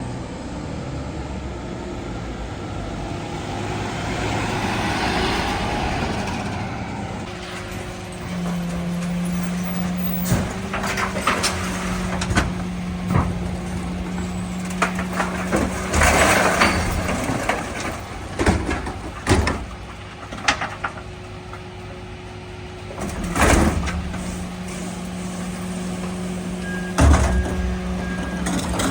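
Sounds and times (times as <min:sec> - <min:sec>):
truck engine whine: 0:00.0 - 0:28.9
bins and rubbish banging: 0:07.2 - 0:22.0, 0:22.8 - 0:28.9.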